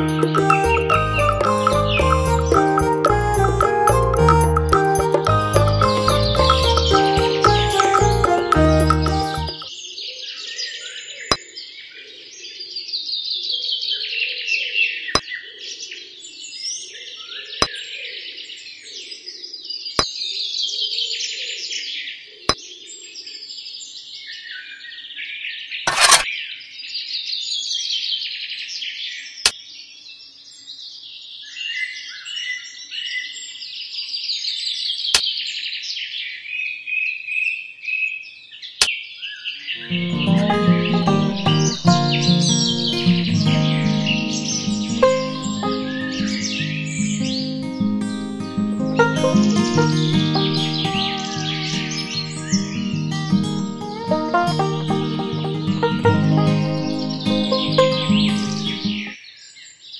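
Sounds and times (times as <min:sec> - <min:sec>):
songbird trilling: 0:50.1 - 0:53.8.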